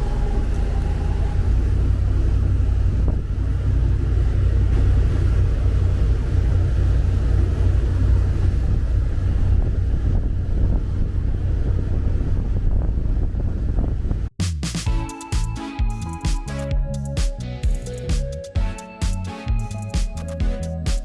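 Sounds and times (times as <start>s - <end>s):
boat engines running: 0.0s - 13.5s
wind buffeting microphone: 0.0s - 14.3s.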